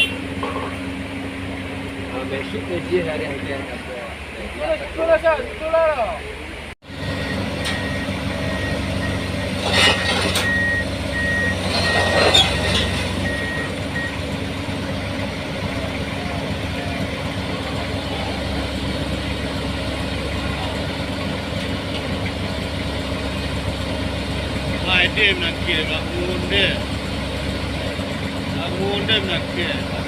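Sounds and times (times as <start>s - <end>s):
excavator diesel engine running: 0.0s - 30.0s
travel alarm beeping: 7.0s - 9.5s, 10.4s - 14.2s.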